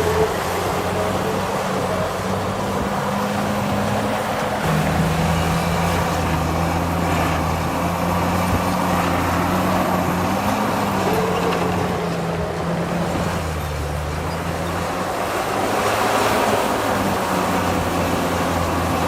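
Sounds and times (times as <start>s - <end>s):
heavy diesel engine under load: 0.0s - 19.0s.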